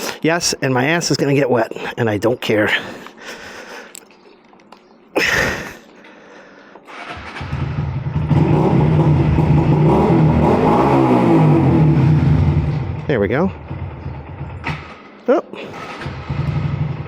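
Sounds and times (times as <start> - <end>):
motorcycle engine running: 7.0 - 15.3, 15.9 - 17.0.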